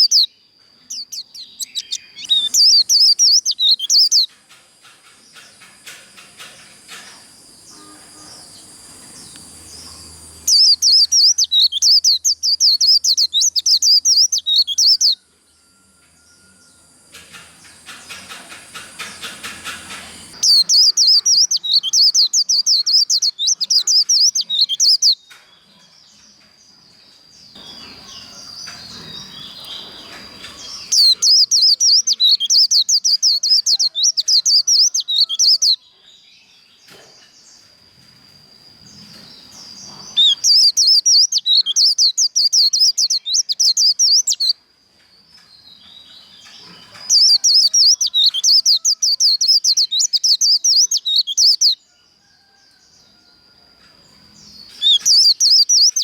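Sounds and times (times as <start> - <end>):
quiet bird twittering: 0.0 - 4.4, 5.1 - 44.6, 45.3 - 53.5, 54.1 - 56.0
bird warbling in rapid bursts: 1.0 - 4.3.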